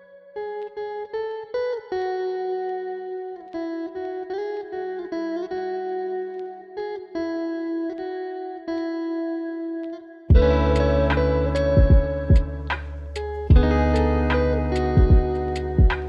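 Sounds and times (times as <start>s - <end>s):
plucked guitar melody: 0.0s - 16.0s
short sharp strikes: 10.3s - 16.0s.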